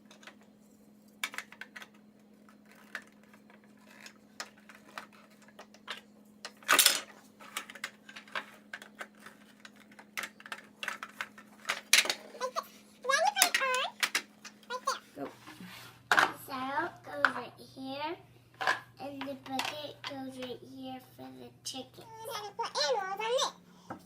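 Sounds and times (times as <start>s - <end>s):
plastic clatter: 1.2s - 12.4s, 13.3s - 14.6s, 18.6s - 18.8s.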